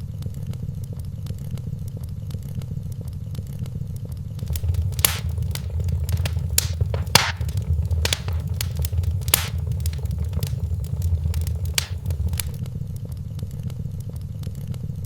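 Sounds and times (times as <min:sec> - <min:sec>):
burning logs popping: 0:04.4 - 0:12.6
low rumble of flames: 0:04.4 - 0:12.6
small crackles of fire: 0:04.4 - 0:12.6.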